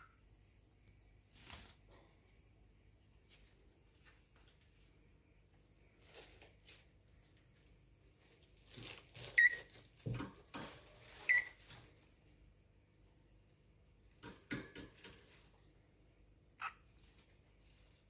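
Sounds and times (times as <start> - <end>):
birds rustling and scratching: 6.0 - 12.1.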